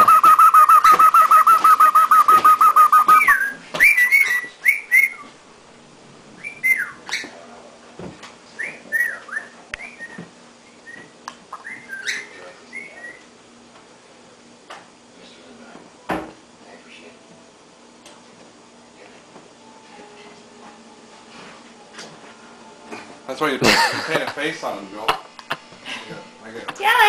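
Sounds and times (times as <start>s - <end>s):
cockatiel calling: 0.0s - 5.2s.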